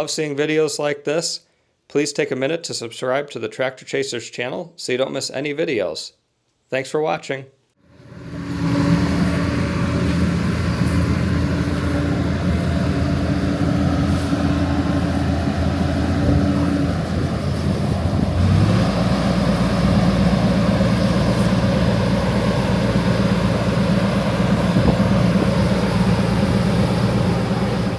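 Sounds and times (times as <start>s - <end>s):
heavy machinery engine running: 7.9s - 27.9s.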